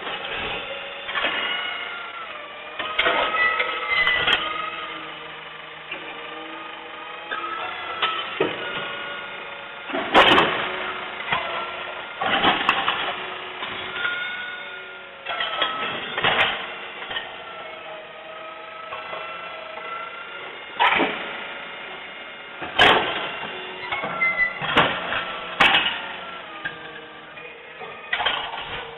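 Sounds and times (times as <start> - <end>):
garbage truck machinery whine: 0.0 - 28.9
loud bangs and clatters: 9.9 - 14.1, 22.6 - 27.0.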